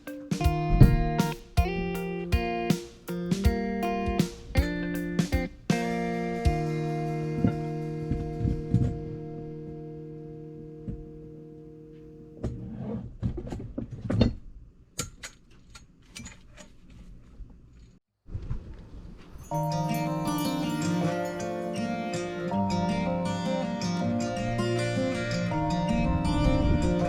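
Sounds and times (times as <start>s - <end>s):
background music: 0.0s - 11.9s, 19.5s - 27.0s
acoustic guitar picking: 0.0s - 12.4s, 19.5s - 27.0s.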